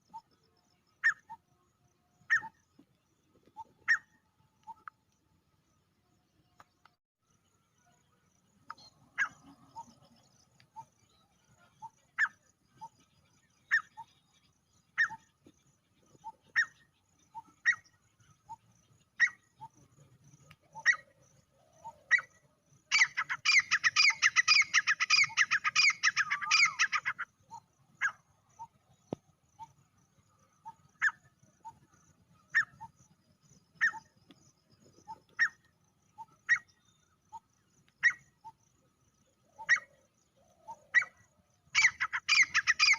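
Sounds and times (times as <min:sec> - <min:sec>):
bird sharp single calls: 0:22.9 - 0:28.7, 0:41.8 - 0:42.9.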